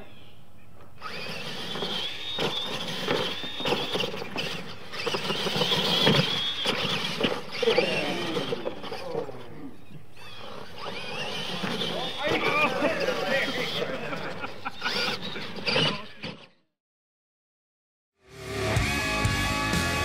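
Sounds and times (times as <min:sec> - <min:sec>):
rc truck motor and gear whine: 0:00.0 - 0:16.7.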